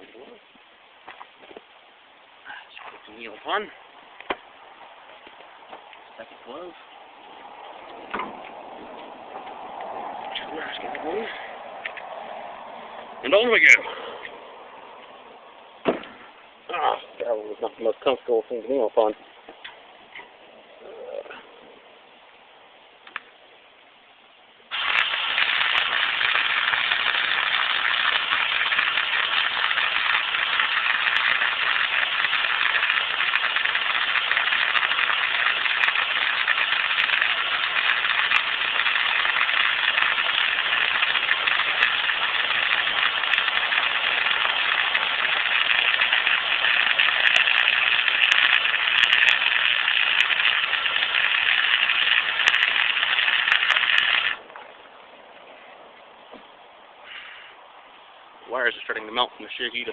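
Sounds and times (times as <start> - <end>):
arc welder crackling sizzle: 3.0 - 11.2, 24.7 - 54.8.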